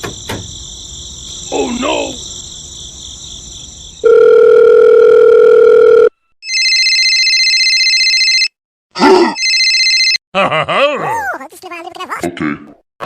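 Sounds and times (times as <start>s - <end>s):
telephone ringing with fast trill: 4.0s - 8.6s, 9.4s - 10.2s
telephone dial tone: 4.1s - 8.5s.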